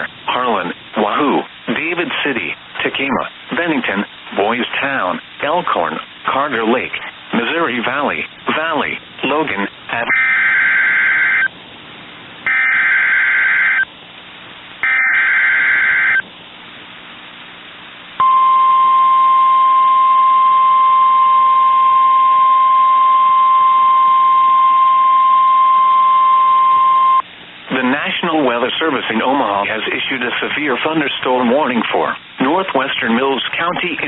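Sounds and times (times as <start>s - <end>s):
steady warning alarm tone: 10.1s - 11.5s, 12.5s - 13.9s, 14.8s - 16.2s, 18.2s - 27.2s.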